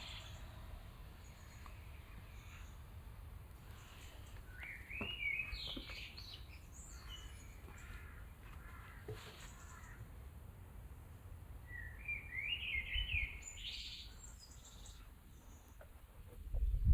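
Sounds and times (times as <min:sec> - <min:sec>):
birds calling: 0:03.6 - 0:10.1.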